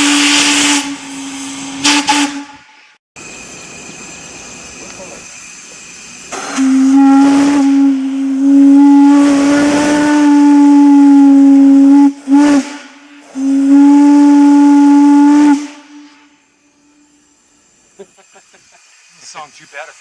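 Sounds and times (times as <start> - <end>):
steam locomotive whistle: 0.0 - 3.0, 6.3 - 17.2
steam hissing: 0.0 - 20.0.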